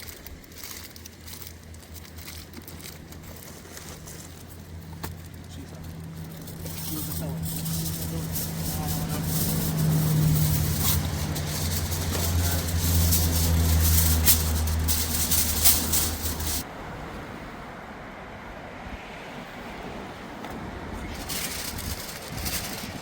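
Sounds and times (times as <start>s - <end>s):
motor humming: 2.4s - 16.6s.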